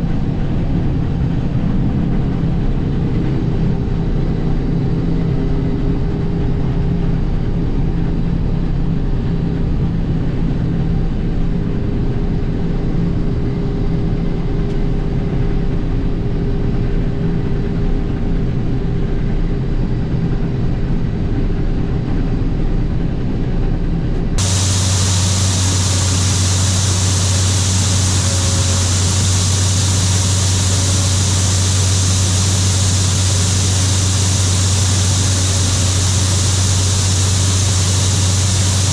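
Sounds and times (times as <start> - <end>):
combine harvester running: 24.4 - 38.9
low hum with hiss: 24.4 - 38.9.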